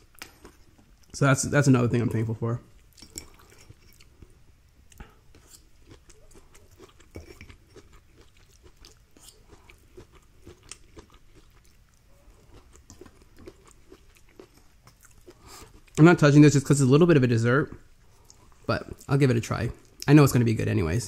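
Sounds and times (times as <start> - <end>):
chewing food: 0.0 - 1.2, 2.7 - 16.0.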